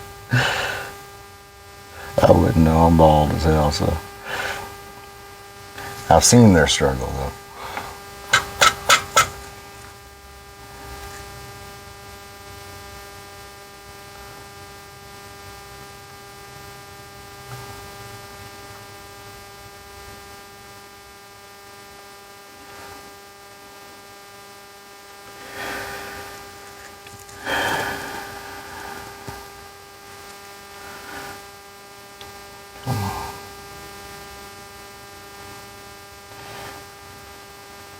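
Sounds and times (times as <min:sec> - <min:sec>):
electrical mains hum: 0:00.0 - 0:37.9
short bursts of noise: 0:05.8 - 0:09.5.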